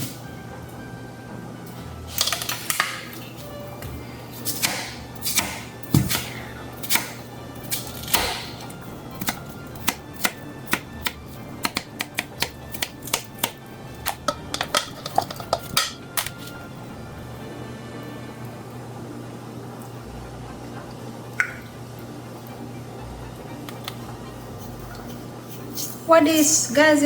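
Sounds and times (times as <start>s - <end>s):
knife chopping on cutting board: 3.8s - 16.5s.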